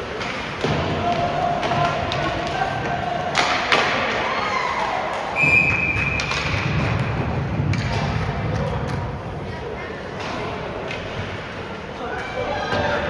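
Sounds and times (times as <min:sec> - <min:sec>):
arena crowd hubbub: 0:00.0 - 0:13.0
thuds on hockey boards: 0:00.2 - 0:04.3, 0:05.3 - 0:09.1
referee whistle blast: 0:05.4 - 0:06.3.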